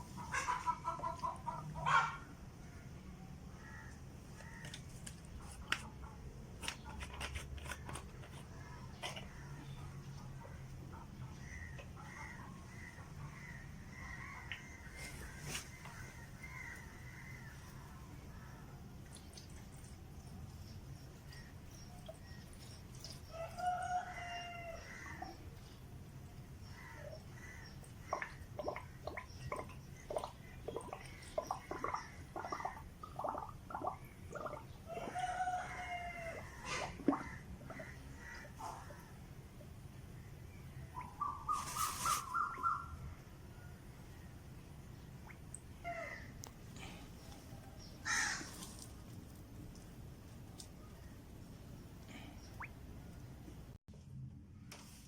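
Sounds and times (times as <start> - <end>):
fowl clucking: 0.1 - 2.3
birds calling: 40.2 - 43.2, 45.0 - 49.1
fowl drawn-out call: 48.0 - 48.6.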